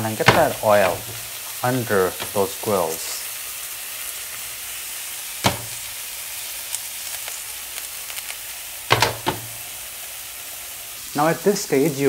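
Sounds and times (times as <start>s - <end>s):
patties sizzling in oil: 0.0s - 12.0s
metallic pan knocks: 5.4s - 5.8s, 8.9s - 9.5s.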